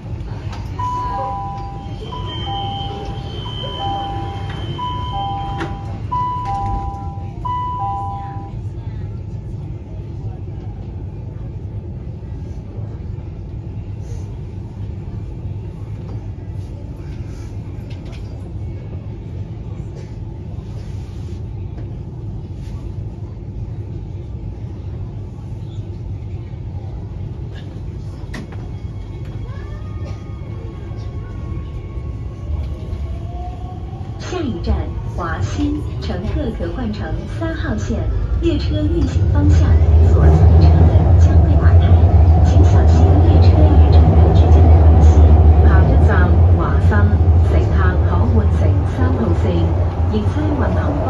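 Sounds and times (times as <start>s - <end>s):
metro train rumble: 0.0s - 51.0s.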